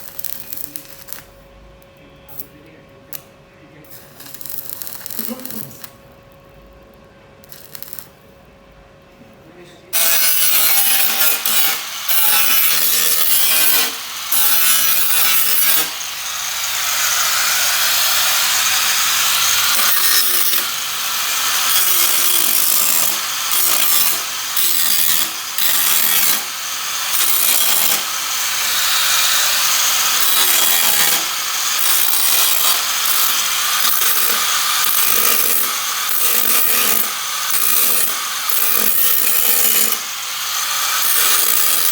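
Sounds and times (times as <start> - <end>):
angle grinder on sheet steel: 10.0 - 41.9.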